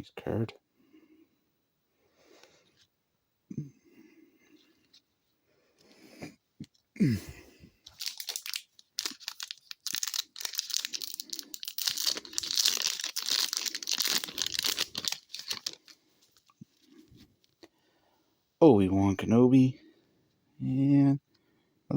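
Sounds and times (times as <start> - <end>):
wrapper tearing and crinkling: 7.9 - 16.5.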